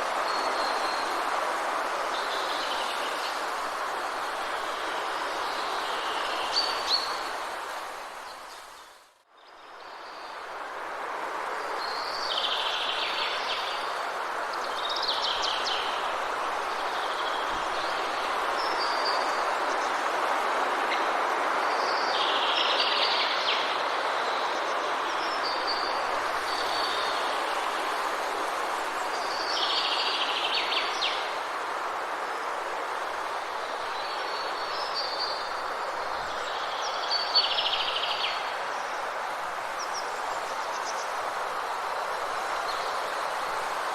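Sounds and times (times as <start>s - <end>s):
steady rushing hiss: 10.4s - 43.9s.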